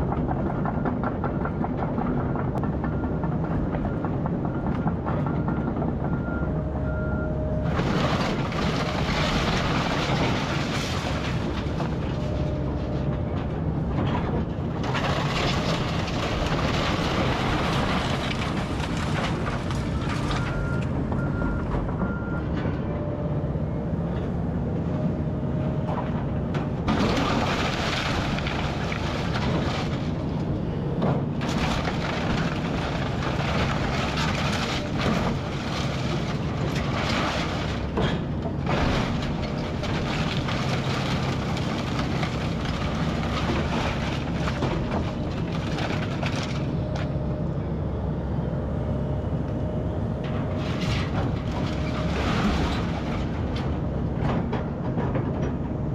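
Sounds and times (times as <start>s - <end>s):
excavator diesel engine running: 0.0s - 55.9s
building material crashing: 7.6s - 12.9s, 14.2s - 20.7s, 26.8s - 30.4s, 31.2s - 46.8s, 50.6s - 53.6s.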